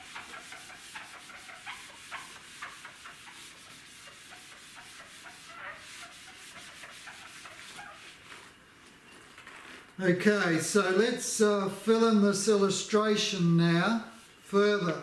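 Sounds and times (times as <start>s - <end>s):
eraser rubbing on board: 0.0s - 8.6s.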